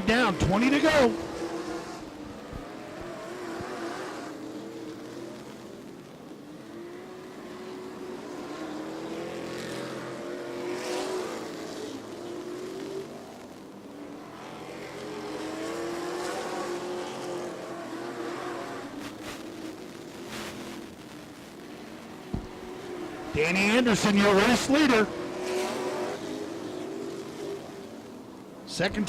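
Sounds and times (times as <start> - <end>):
race truck engines passing: 0.0 - 29.0.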